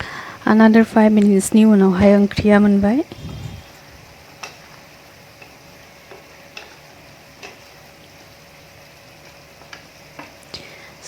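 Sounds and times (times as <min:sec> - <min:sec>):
food sizzling in a pan: 0:01.0 - 0:11.0.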